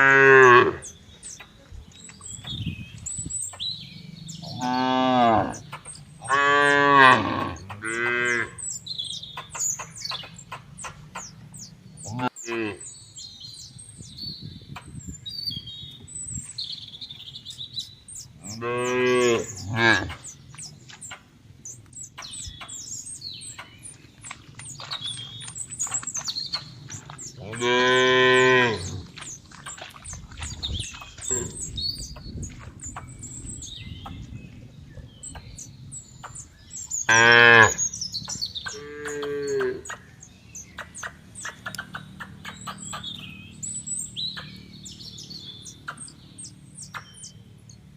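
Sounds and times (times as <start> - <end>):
cattle mooing: 0.0 - 0.9, 4.4 - 5.6, 6.2 - 8.6, 12.0 - 12.8, 18.4 - 20.2, 27.4 - 29.1, 37.1 - 37.8.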